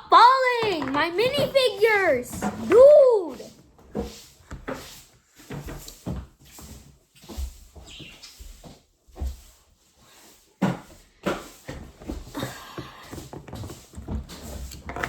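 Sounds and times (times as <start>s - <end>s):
plastic toys clicking and knocking: 0.4s - 2.8s.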